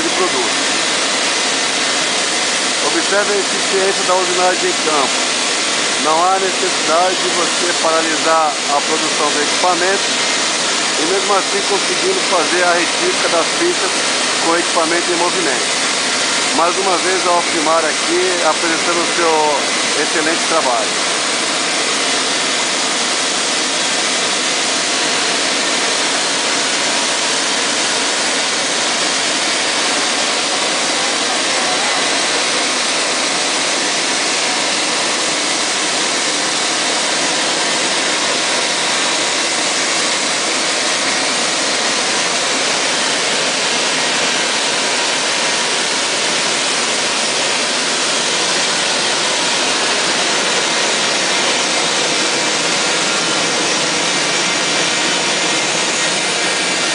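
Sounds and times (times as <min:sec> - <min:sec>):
grinding hiss: 0:00.0 - 0:56.9.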